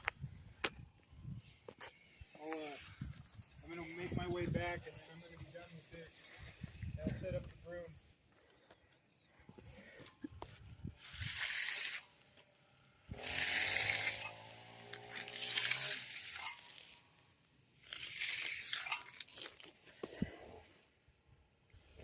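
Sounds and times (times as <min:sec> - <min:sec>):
broom scraping wet concrete: 0:01.7 - 0:06.4, 0:10.9 - 0:12.4, 0:13.1 - 0:17.2, 0:17.8 - 0:20.2.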